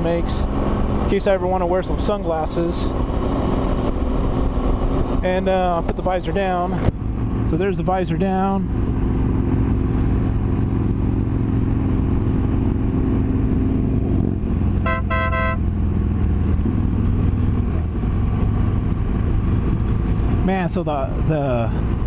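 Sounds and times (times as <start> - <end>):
motorcycle engine running: 0.0 - 20.8
horn toots: 14.8 - 15.7.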